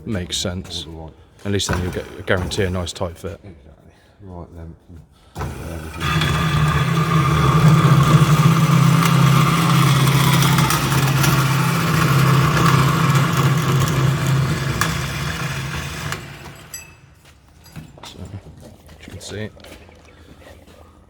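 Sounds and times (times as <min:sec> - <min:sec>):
electric saw cutting metal tube: 0:01.6 - 0:03.0, 0:05.4 - 0:17.2.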